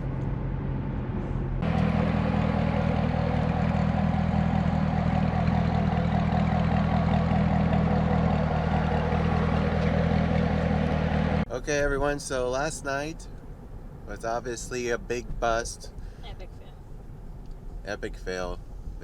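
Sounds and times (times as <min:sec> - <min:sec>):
car engine cruising: 0:00.0 - 0:19.0
road noise: 0:00.0 - 0:19.0.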